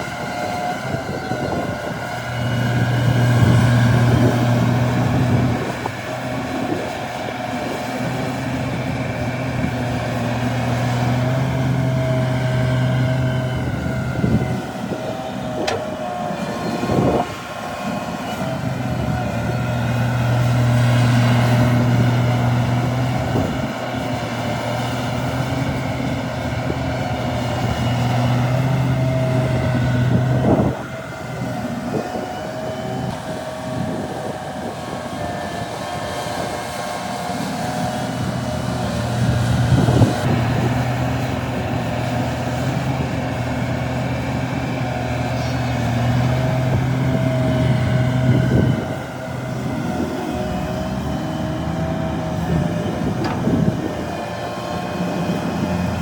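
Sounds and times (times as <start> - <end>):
heavy diesel engine humming: 0.0 - 56.0.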